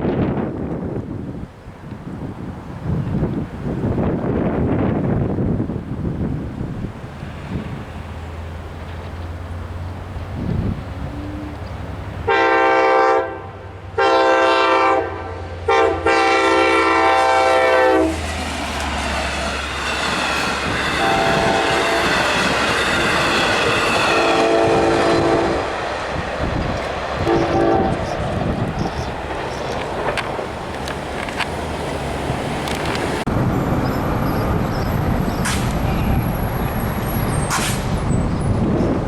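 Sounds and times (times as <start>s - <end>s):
train rumble and rail clatter: 0.0s - 39.0s
train horn blasts: 12.2s - 18.2s, 20.9s - 22.5s, 23.8s - 25.8s, 27.2s - 28.2s.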